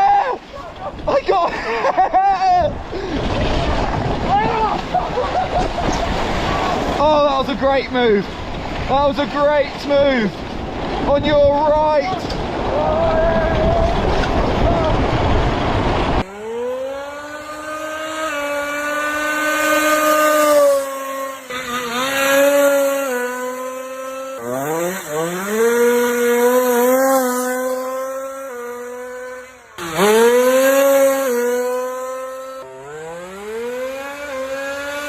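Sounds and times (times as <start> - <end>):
engine revving: 11.8 - 35.0.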